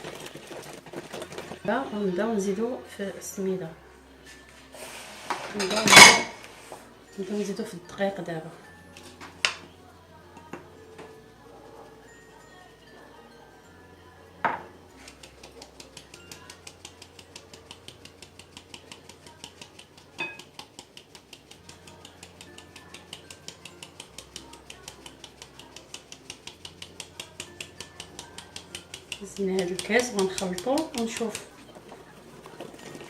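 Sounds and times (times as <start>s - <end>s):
whisk clicking against bowl: 0.0s - 1.7s, 15.0s - 33.0s.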